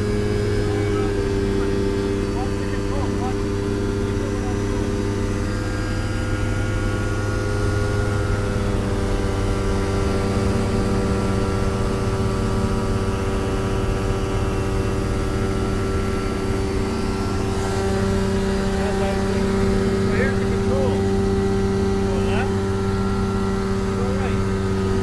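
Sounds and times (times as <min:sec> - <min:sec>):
light aircraft engine drone: 0:00.0 - 0:25.0.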